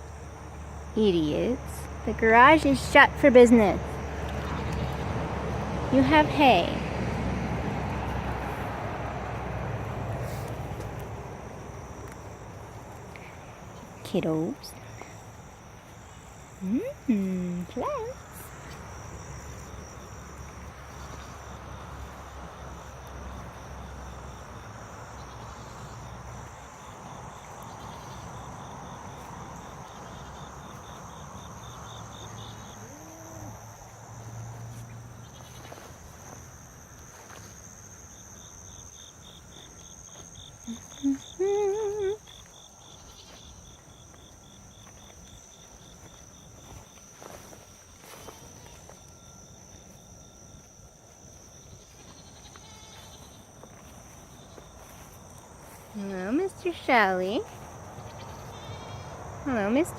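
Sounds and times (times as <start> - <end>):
insects trilling: 0.0 - 59.9
goat bleating: 52.1 - 53.3, 58.0 - 59.2.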